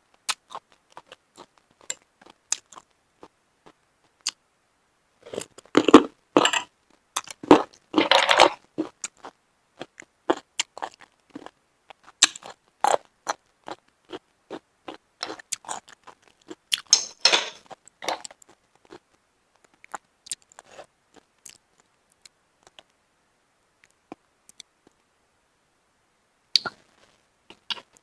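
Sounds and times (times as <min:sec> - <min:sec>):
person chewing: 0:00.2 - 0:04.4, 0:05.2 - 0:22.9, 0:27.5 - 0:28.0
wet mouth clicks: 0:26.6 - 0:26.8.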